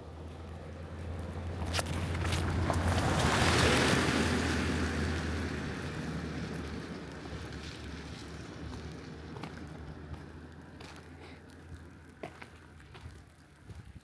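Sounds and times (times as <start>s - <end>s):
vehicle passing on wet road: 0.2s - 10.8s.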